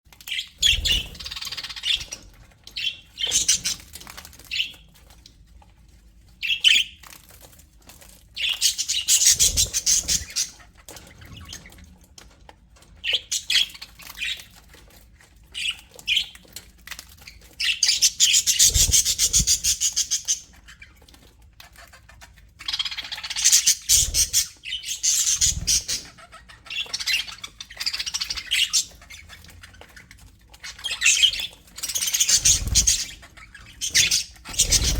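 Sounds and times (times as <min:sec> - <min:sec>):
budgerigars chattering and chirping: 0:08.4 - 0:11.6, 0:22.6 - 0:29.4, 0:30.6 - 0:34.9.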